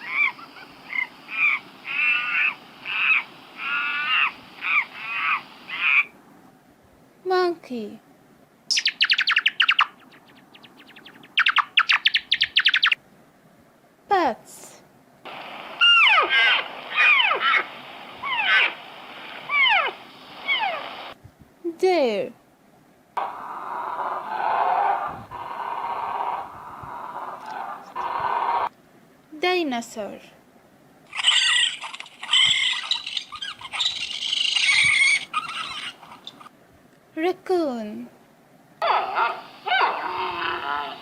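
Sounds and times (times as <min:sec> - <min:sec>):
shrill dinosaur screeching: 0:00.0 - 0:06.1, 0:15.8 - 0:18.8, 0:19.5 - 0:20.8, 0:31.1 - 0:36.3, 0:38.8 - 0:41.0
recording hiss: 0:00.0 - 0:41.0
bat calls sliding down in pitch: 0:15.8 - 0:18.8, 0:31.1 - 0:36.4.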